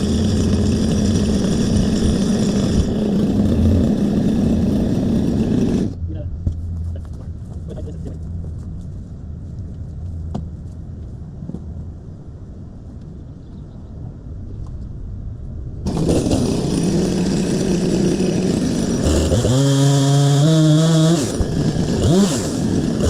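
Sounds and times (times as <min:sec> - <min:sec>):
chainsaw revving: 0:00.0 - 0:06.0, 0:15.8 - 0:23.0
low engine rumble: 0:00.0 - 0:19.1.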